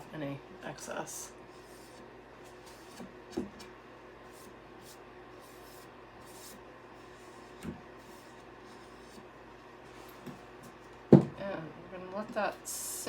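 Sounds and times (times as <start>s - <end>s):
low steady hum: 0.0s - 13.0s
soft knock: 11.1s - 11.4s.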